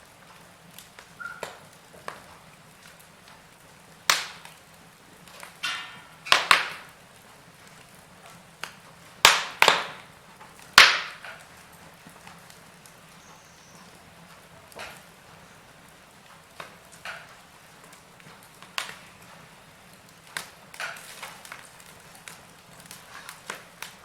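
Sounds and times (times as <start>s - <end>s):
fire hissing softly: 0.0s - 24.0s
wood fire crackling: 0.0s - 24.0s
logs popping loudly: 9.2s - 10.1s, 10.7s - 11.5s.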